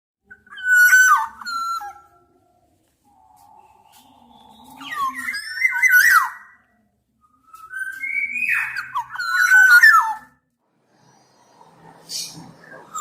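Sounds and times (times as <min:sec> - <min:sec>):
bird whistling fluty song: 0:00.2 - 0:02.3, 0:03.2 - 0:10.4.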